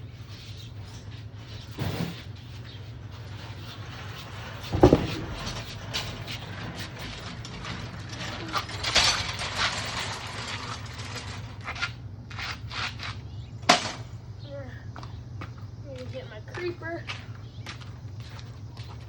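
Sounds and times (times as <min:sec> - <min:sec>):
loud thump: 0:04.7 - 0:05.8.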